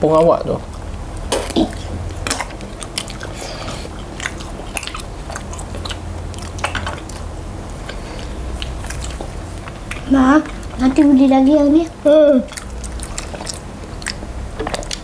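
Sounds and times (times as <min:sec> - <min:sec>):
people chewing food: 0:00.0 - 0:15.0
wet mouth clicks and smacks: 0:00.8 - 0:07.3, 0:07.9 - 0:10.8, 0:12.5 - 0:15.0.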